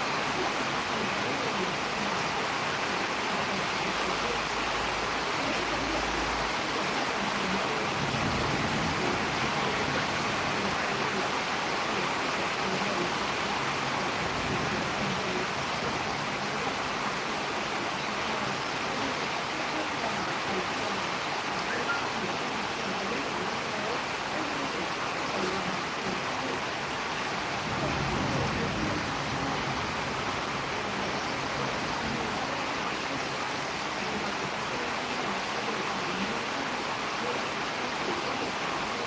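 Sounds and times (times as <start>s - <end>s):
storm wind rushing: 7.7s - 10.7s.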